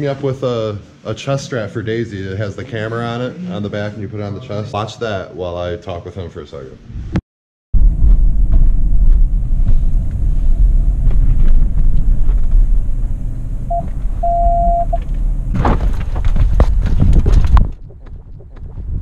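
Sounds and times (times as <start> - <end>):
short beeps: 13.7 - 15.0
camera handling rumble: 15.0 - 18.7.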